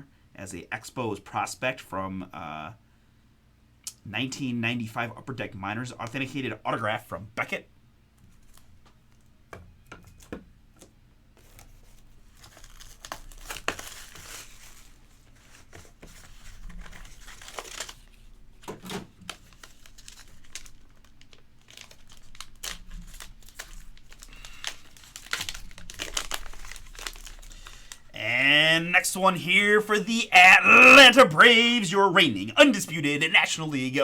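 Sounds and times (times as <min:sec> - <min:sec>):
plastic wrap crinkling and tearing: 0:11.7 - 0:18.6, 0:19.2 - 0:28.2.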